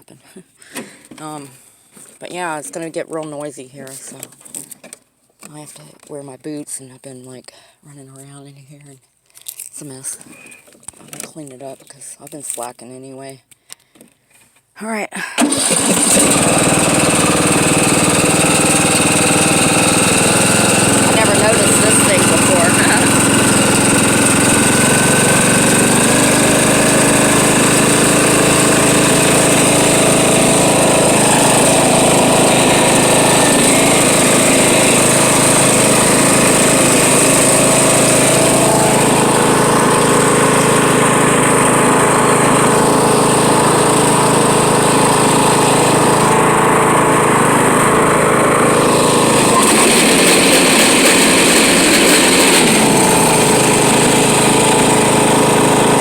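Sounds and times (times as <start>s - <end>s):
riding lawn mower grinding: 15.4s - 56.0s.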